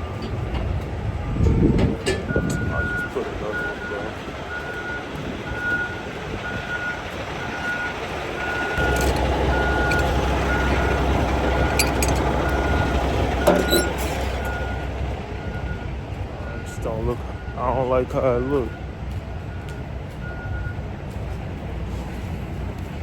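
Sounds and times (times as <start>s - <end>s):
engine running: 0.0s - 23.0s
vehicle reverse alarm beeping: 1.2s - 21.0s
short metallic clanks: 8.8s - 14.7s.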